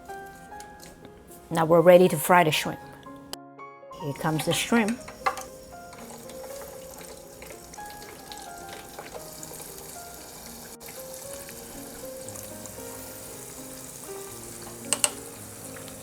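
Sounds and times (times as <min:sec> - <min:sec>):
shrimp deep-frying in oil: 0:04.0 - 0:16.0.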